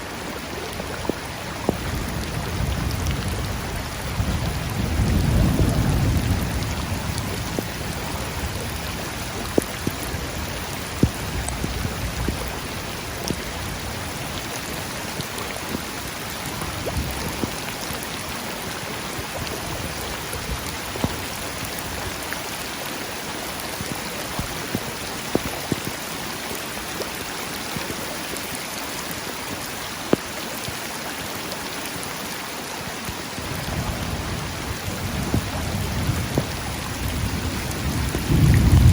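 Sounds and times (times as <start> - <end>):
steady rain falling: 0.0 - 38.9
raindrop hits: 0.7 - 22.3, 23.6 - 28.1, 33.0 - 38.9
low rumble of thunder: 1.7 - 12.8, 33.5 - 38.9.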